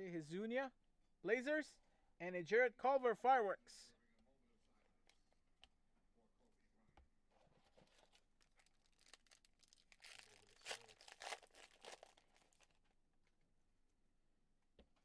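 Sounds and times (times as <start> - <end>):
foil wrapper crinkling and tearing: 7.8 - 12.8.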